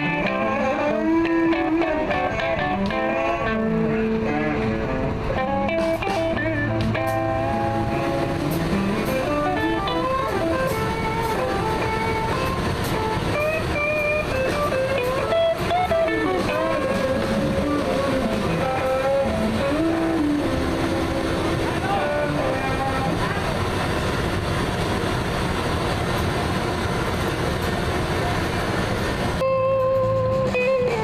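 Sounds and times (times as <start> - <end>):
rock band playing: 0.0 - 23.8, 29.4 - 31.0
electric guitar lead line: 0.0 - 31.0.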